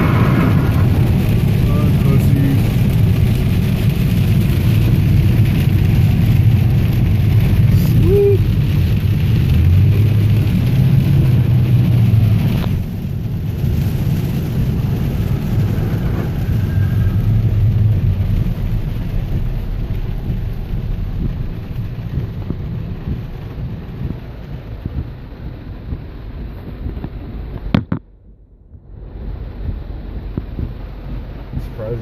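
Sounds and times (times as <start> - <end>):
deep low rumble: 0.0 - 32.0
heavy rain on a car: 0.0 - 32.0.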